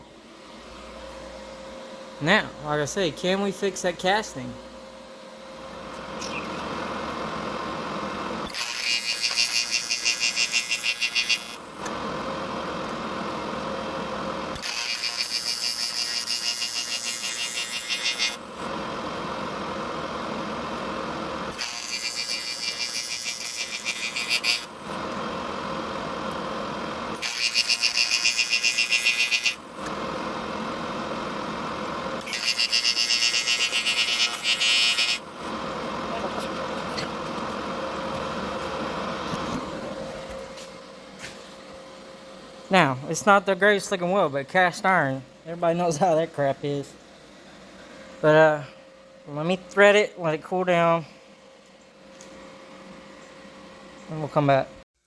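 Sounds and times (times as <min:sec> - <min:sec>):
welding machine hum: 0:05.3 - 0:41.8
arc welding crackling and buzzing: 0:05.6 - 0:41.8.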